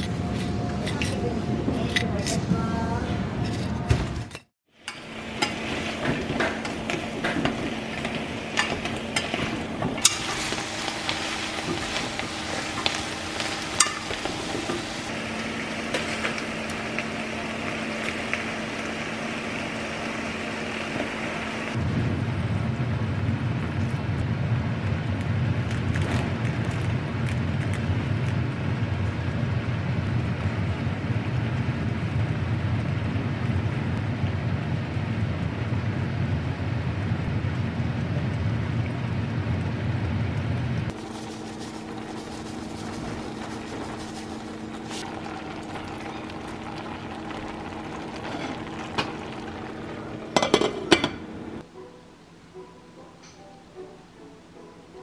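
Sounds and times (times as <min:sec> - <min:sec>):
food sizzling in a pot: 0:04.8 - 0:21.8, 0:40.9 - 0:51.6
loud low steady noise: 0:04.9 - 0:51.7.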